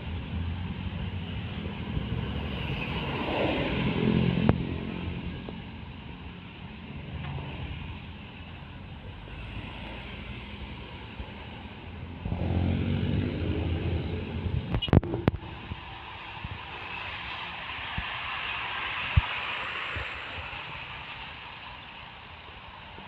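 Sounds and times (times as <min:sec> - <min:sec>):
diesel engine passing close: 0:00.0 - 0:05.4, 0:11.9 - 0:15.8
road traffic: 0:00.0 - 0:23.0.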